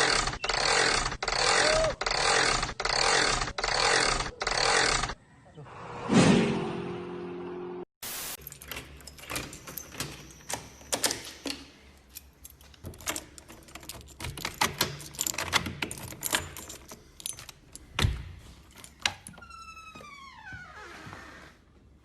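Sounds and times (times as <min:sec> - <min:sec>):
sharp clicks and rattles: 0:08.4 - 0:19.4.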